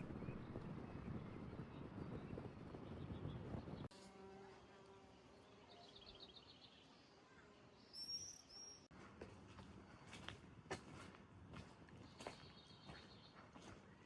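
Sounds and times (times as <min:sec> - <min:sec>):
songbird trill: 0:05.4 - 0:08.9.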